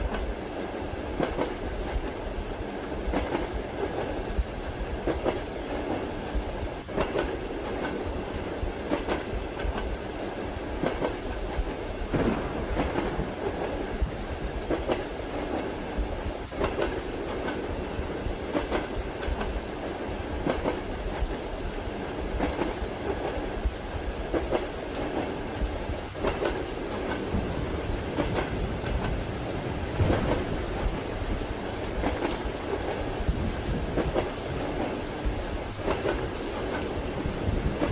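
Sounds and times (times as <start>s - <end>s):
rain: 0.0s - 37.9s
train rumble: 0.0s - 37.9s
wheels clacking over rail joints: 5.0s - 10.0s, 10.8s - 15.8s, 16.4s - 19.6s, 24.3s - 37.9s.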